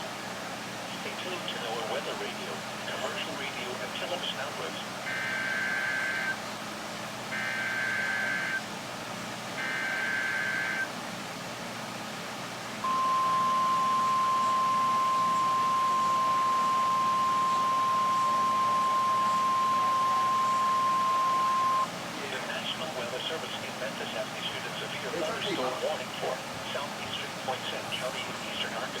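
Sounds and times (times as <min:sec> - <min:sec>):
steady warning alarm tone: 0:05.0 - 0:06.4, 0:07.3 - 0:08.7, 0:09.6 - 0:10.9, 0:12.8 - 0:21.9
buzzy warbling data tones: 0:07.4 - 0:08.6, 0:12.8 - 0:21.9.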